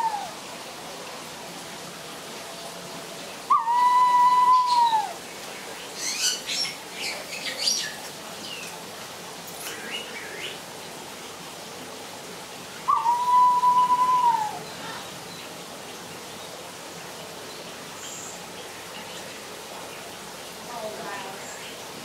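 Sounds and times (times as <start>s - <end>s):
bird long whistle: 3.5s - 5.1s, 12.9s - 14.6s.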